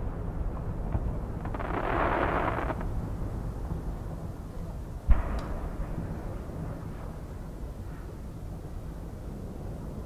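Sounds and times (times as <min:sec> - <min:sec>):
firework rumbling echo: 0:00.0 - 0:10.0.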